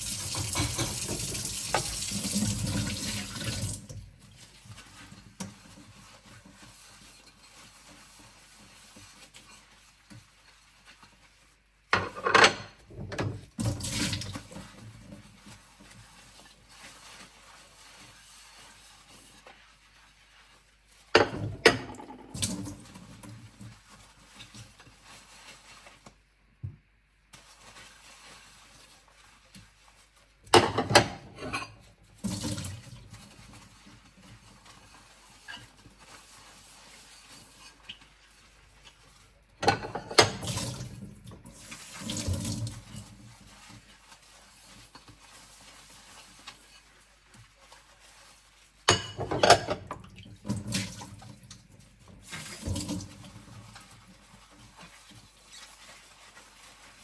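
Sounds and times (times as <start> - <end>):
plates clinking in a sink: 0.2 - 2.0, 11.9 - 13.4, 21.2 - 22.5, 30.5 - 31.9, 39.6 - 40.8, 48.9 - 50.2.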